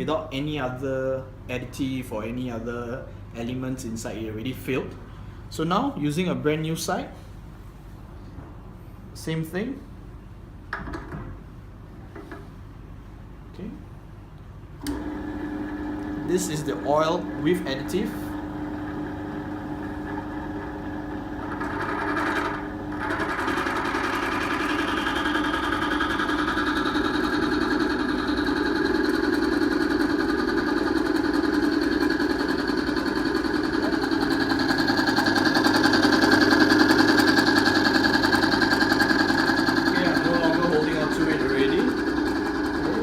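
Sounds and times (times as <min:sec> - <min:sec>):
test machine motor running: 0:14.9 - 0:43.0.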